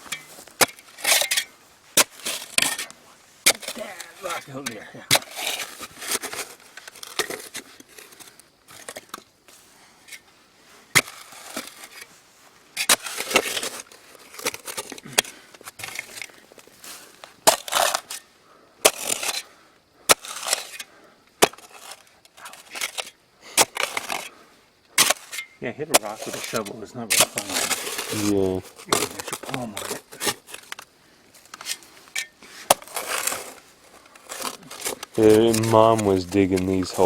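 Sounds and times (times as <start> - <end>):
shovel clanking on rock: 0.0 - 9.2, 25.0 - 30.8, 31.5 - 37.0
shovel scraping soil: 0.0 - 24.4, 25.0 - 37.0.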